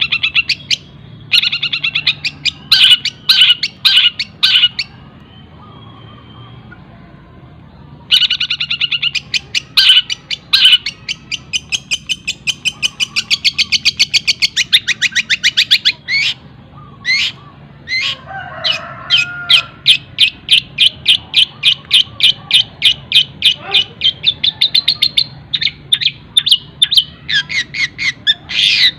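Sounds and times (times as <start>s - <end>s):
bird singing rapid high notes: 0.0s - 6.8s, 8.1s - 18.2s
bird calls: 0.0s - 7.0s, 7.7s - 28.9s.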